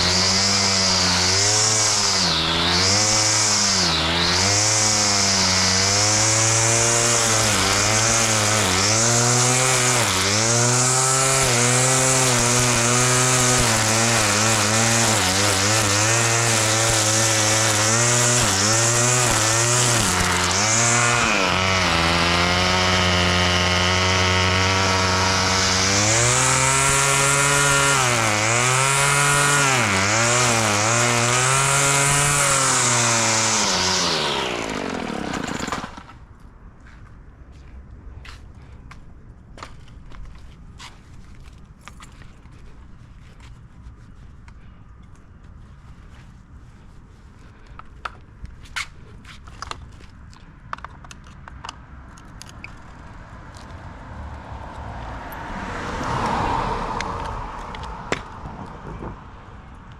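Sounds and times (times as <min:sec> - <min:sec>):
grass cutter petrol engine: 0:00.0 - 0:36.2.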